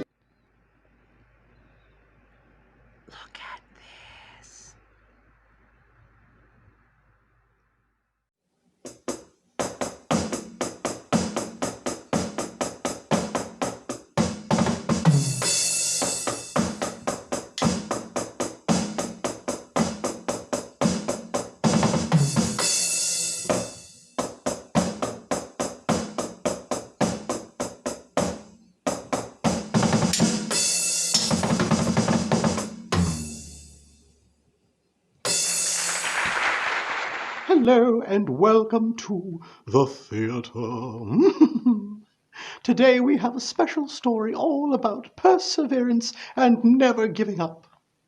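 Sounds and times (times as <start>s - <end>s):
drum kit beat: 8.9s - 33.6s, 35.3s - 36.9s
cymbal-heavy drum fills: 8.9s - 33.7s, 35.3s - 36.7s.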